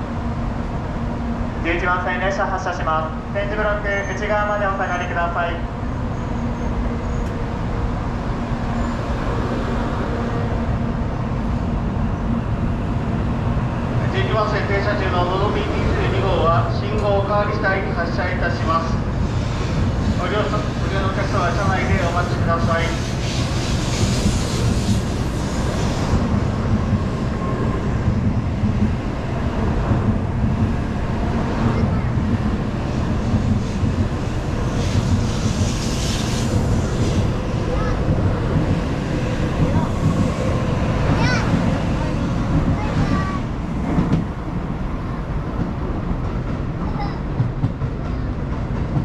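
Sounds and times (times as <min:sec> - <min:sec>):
train wheels rumbling: 0:00.0 - 0:49.0.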